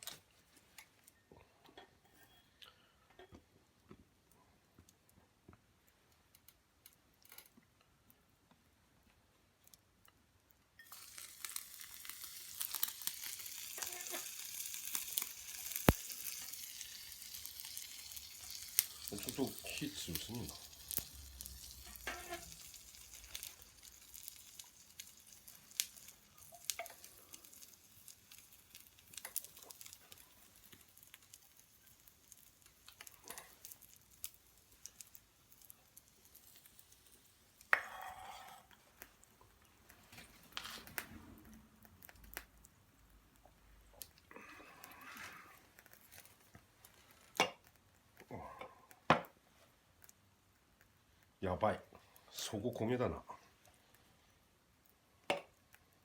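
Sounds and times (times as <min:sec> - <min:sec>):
food sizzling in a frying pan: 0:10.8 - 0:39.5
fire crackling: 0:10.8 - 0:56.0.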